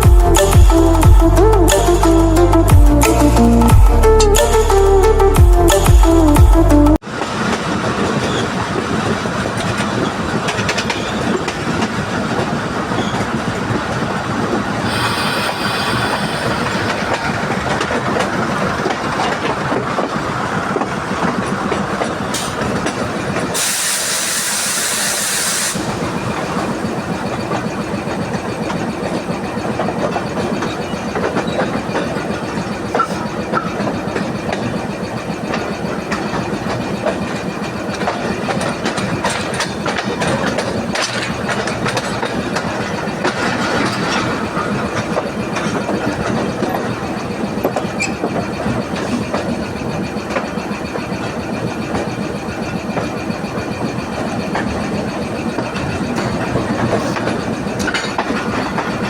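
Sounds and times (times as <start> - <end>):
train passing at speed: 7.0 - 59.0
wheel clatter over rails: 7.0 - 59.0
loud hiss: 14.7 - 17.7, 23.6 - 27.1.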